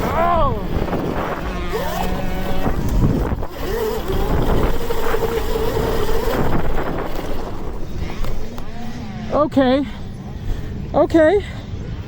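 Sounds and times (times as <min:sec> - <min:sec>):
electric motor whine: 0:00.0 - 0:09.7
wind buffeting microphone: 0:00.0 - 0:12.0.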